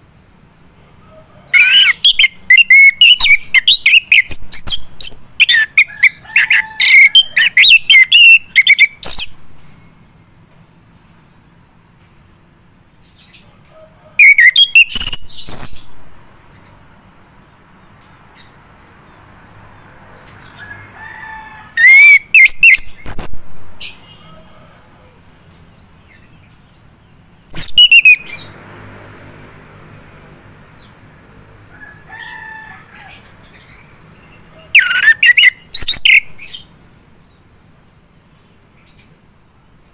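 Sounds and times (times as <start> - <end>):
thrush singing: 1.5 - 9.7, 27.5 - 32.1.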